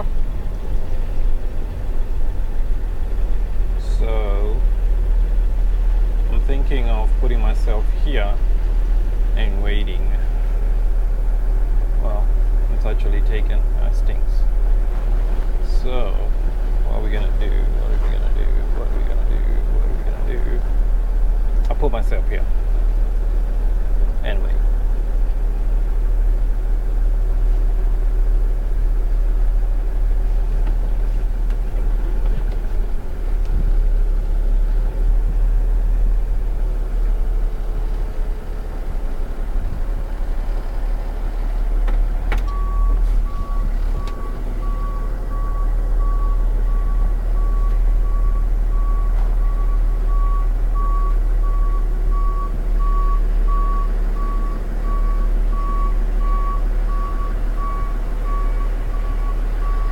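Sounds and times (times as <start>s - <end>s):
truck engine rumbling: 0.0s - 59.9s
reversing alarm beeps: 42.5s - 59.9s.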